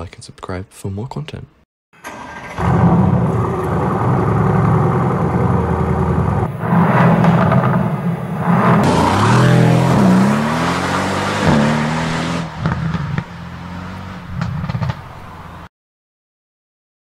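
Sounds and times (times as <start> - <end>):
sports car engine revving: 2.6 - 15.7.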